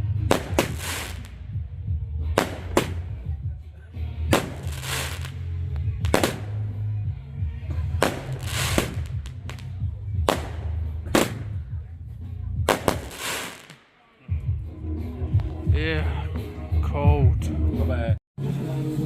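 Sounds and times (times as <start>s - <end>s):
fireworks bangs: 0.3s - 1.4s, 2.4s - 3.2s, 4.3s - 5.4s, 6.0s - 6.7s, 8.0s - 11.6s, 12.7s - 13.9s
crackling hiss: 12.7s - 13.9s.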